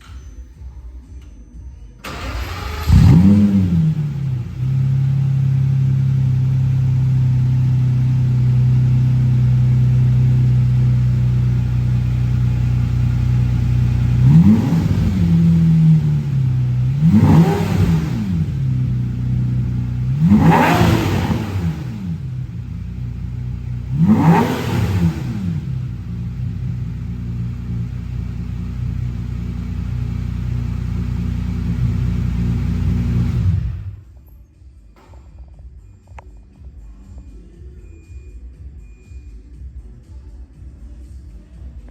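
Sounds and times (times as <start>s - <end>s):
engine starting and revving: 2.0s - 8.3s, 12.8s - 34.0s.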